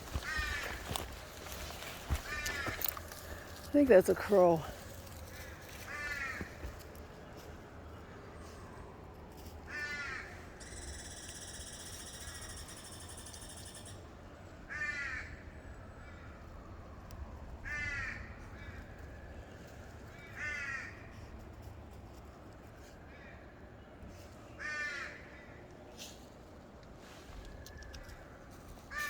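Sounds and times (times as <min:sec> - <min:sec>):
crow cawing: 0:00.1 - 0:00.9, 0:02.2 - 0:02.8, 0:05.3 - 0:06.6, 0:09.7 - 0:10.4, 0:14.7 - 0:15.4, 0:17.6 - 0:18.3, 0:20.3 - 0:21.1, 0:24.6 - 0:25.5.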